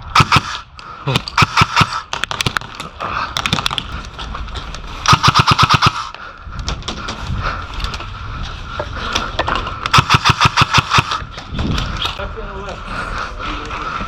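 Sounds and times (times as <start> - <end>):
airsoft rifle full-auto fire: 0.1 - 0.6, 1.4 - 2.1, 5.1 - 6.1, 9.9 - 11.2.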